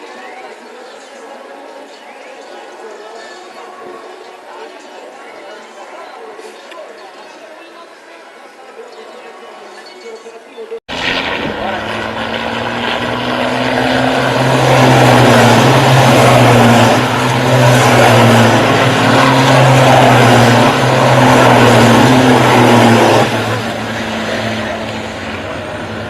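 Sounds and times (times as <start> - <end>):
heavy vehicle engines running: 10.9 - 26.0.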